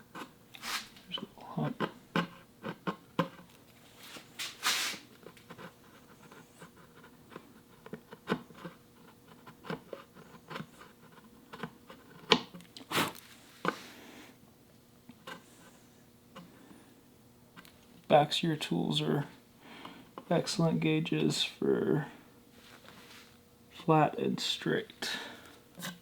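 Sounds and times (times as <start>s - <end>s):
chisel scraping wood: 1.7s - 3.5s, 25.8s - 26.0s.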